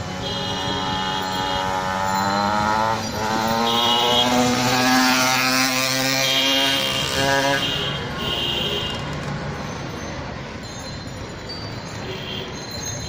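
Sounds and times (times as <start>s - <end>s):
motorbike engine revving: 0.0s - 7.8s.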